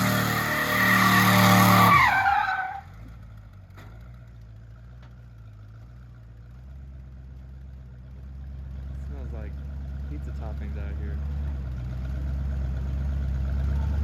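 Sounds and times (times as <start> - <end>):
tires squealing: 0.0 - 3.1
car engine revving and idling: 0.0 - 14.0.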